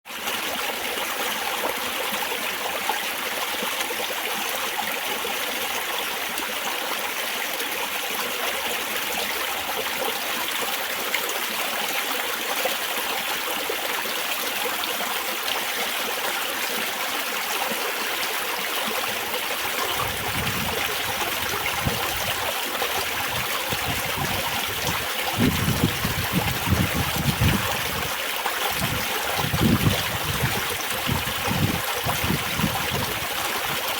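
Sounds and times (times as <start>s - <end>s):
water trickling over stones: 0.1s - 33.9s.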